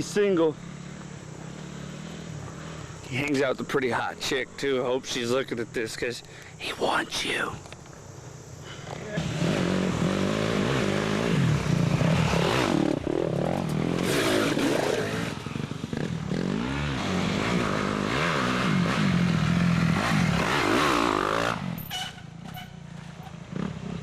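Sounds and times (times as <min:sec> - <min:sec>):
dirt bike engines revving: 0:00.0 - 0:07.0, 0:08.0 - 0:24.0.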